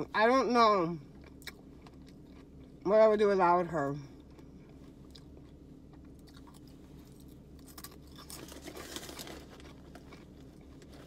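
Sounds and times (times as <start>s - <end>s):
person chewing crunchy snack: 1.1s - 2.8s, 4.2s - 11.0s.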